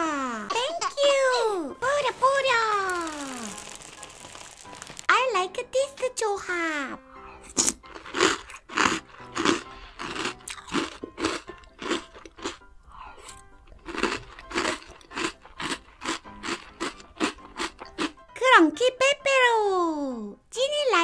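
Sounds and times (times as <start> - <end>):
soft background music: 0.0 - 21.0
crunching and chewing cereal: 1.8 - 5.1, 7.4 - 18.2.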